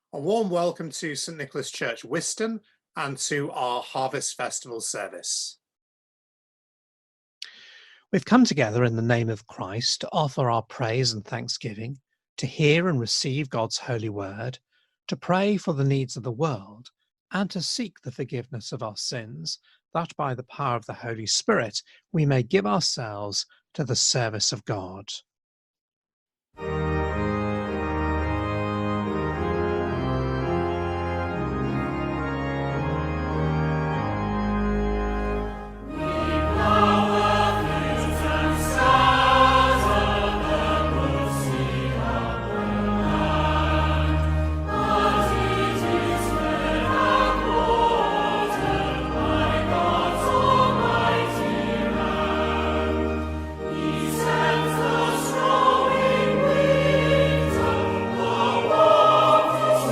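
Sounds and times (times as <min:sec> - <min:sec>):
church organ chords: 0:26.6 - 0:59.9
voices singing a hymn: 0:35.8 - 0:59.9.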